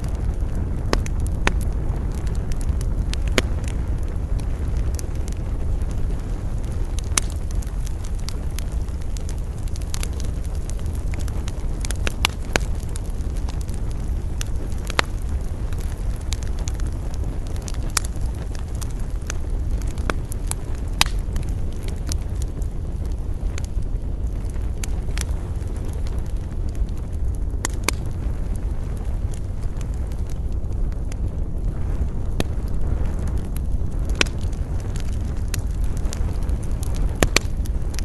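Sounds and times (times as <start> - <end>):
campfire crackling and popping: 0.0 - 38.0
low wind rumble: 0.0 - 38.0.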